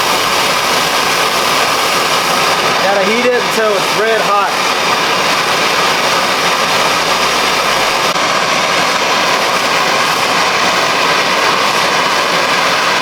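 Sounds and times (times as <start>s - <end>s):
gas torch flame hissing: 0.0s - 13.0s.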